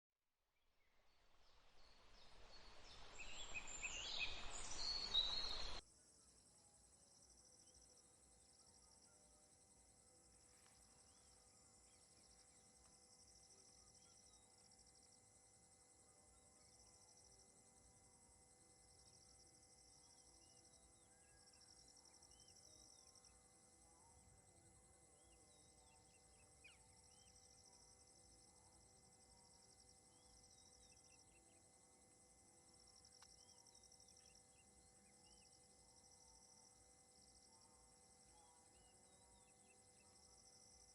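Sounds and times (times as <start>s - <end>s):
insects chirring: 2.5s - 40.9s
birds chirping: 2.6s - 5.8s.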